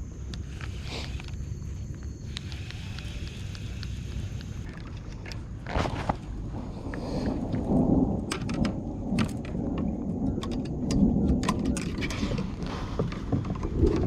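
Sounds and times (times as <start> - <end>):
sharp ticks: 0.0 - 5.4
thunder rumbling: 6.3 - 14.0.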